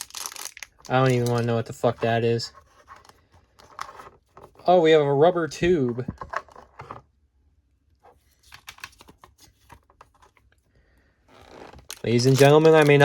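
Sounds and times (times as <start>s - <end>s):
plastic items and packaging clicking: 0.0s - 2.2s, 11.3s - 13.0s.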